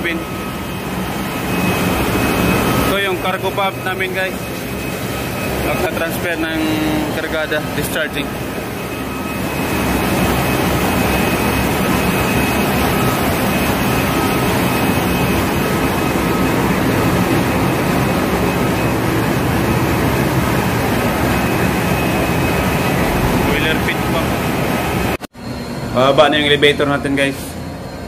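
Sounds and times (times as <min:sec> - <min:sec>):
engine room machinery din: 0:00.0 - 0:28.0
faint high whine: 0:00.0 - 0:28.0.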